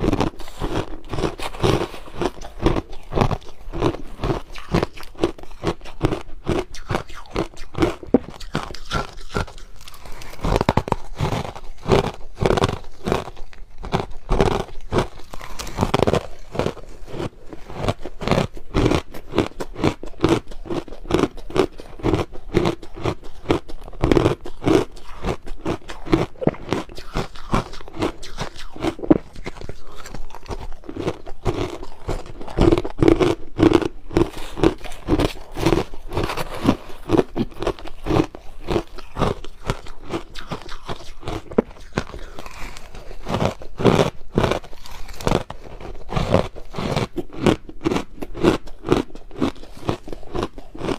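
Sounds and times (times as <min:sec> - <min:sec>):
chewing crushed ice: 0:00.0 - 0:50.9.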